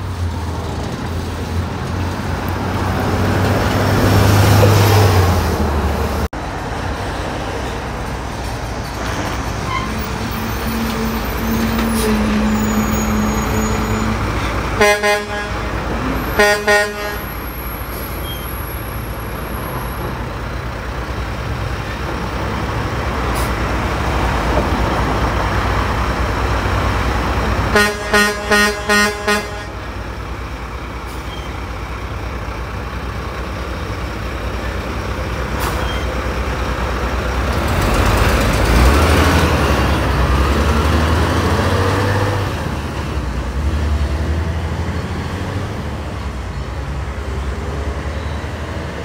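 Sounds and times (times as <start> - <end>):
road traffic with heavy vehicles: 0.0 - 49.0
truck horn blasts: 14.8 - 17.5, 27.7 - 30.0.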